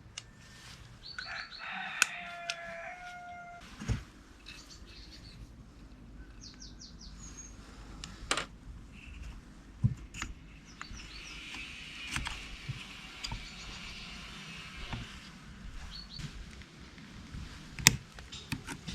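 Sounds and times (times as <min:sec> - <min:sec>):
small birds chirping: 0:01.0 - 0:01.8, 0:04.4 - 0:08.0, 0:10.0 - 0:16.6
sharp clicks and knocks: 0:17.8 - 0:18.9.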